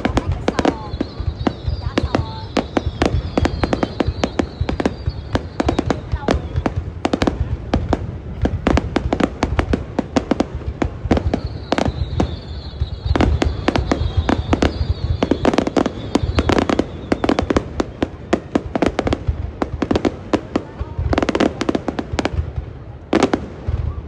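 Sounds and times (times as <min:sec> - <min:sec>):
fireworks bangs and cracks: 0:00.0 - 0:24.0
faint high whistle: 0:00.7 - 0:06.0, 0:11.3 - 0:18.1.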